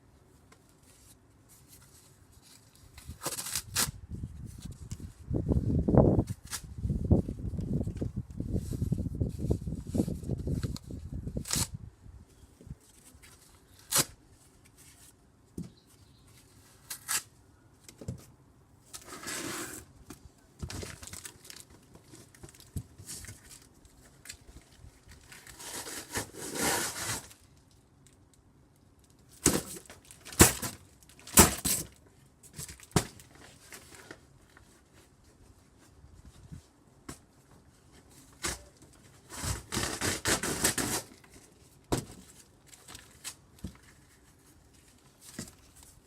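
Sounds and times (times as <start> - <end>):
cardboard tearing and crumpling: 2.9 - 4.0, 10.5 - 11.8, 25.1 - 27.4, 29.4 - 32.0, 38.3 - 43.4
pole hitting cardboard box: 41.9 - 42.2.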